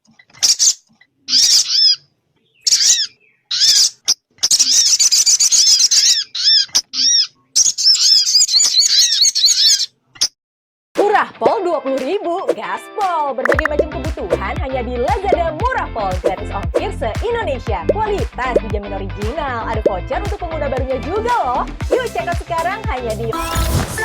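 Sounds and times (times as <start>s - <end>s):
bird call high chirps: 0.4s - 9.9s
bird chattering: 0.4s - 9.9s.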